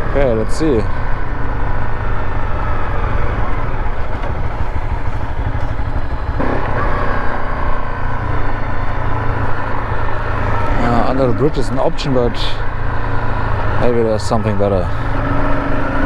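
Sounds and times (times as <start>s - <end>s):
motorcycle engine running: 0.0s - 16.0s
wind rumble on microphone: 1.0s - 6.7s.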